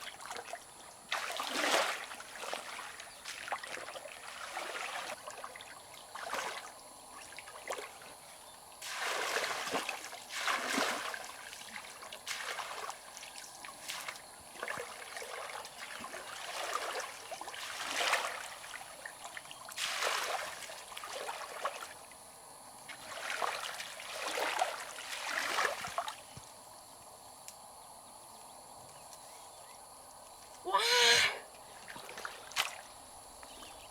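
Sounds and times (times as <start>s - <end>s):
river water splashing: 0.0s - 8.0s, 8.8s - 22.0s, 22.9s - 26.2s.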